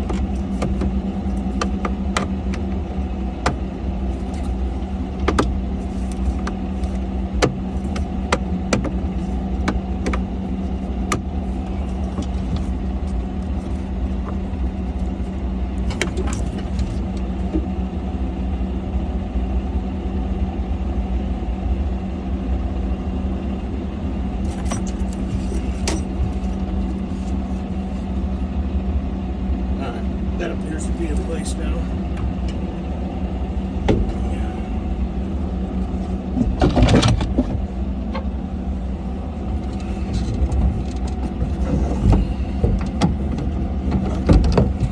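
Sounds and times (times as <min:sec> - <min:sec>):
clicks and rattles of parts handled: 0:00.0 - 0:17.6, 0:24.4 - 0:28.4, 0:35.1 - 0:44.9
diesel engine idling: 0:00.0 - 0:44.9.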